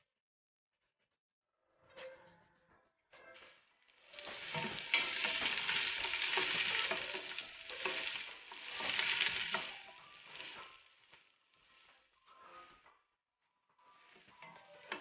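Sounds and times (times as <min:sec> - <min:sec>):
ingredients sizzling in hot oil: 0:03.8 - 0:12.8, 0:13.9 - 0:15.0.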